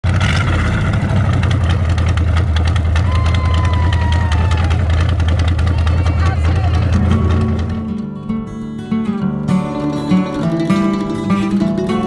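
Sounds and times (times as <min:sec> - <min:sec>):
car engine low rumble: 0:00.0 - 0:09.1.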